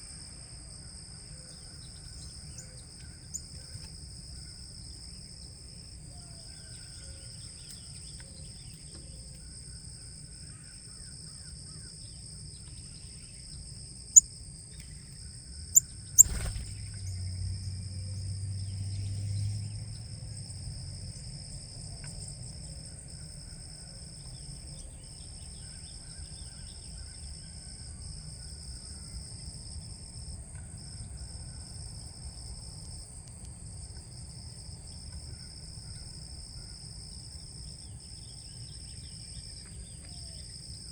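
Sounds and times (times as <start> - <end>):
crickets chirping: 0.0 - 40.9
faint bird chirps: 15.7 - 17.2.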